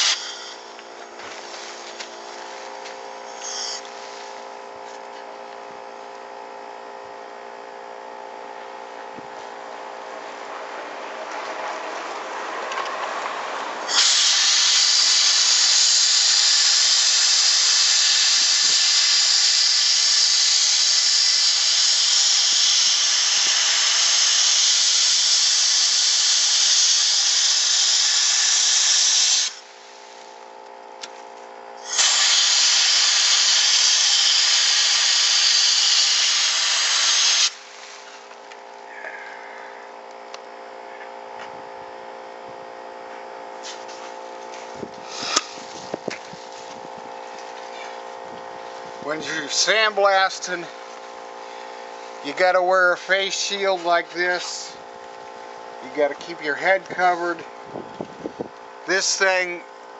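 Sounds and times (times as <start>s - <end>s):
sandblasting gun hissing: 0.0s - 4.6s, 13.8s - 30.3s, 31.8s - 38.3s, 43.6s - 54.8s
air compressor humming: 0.0s - 59.9s.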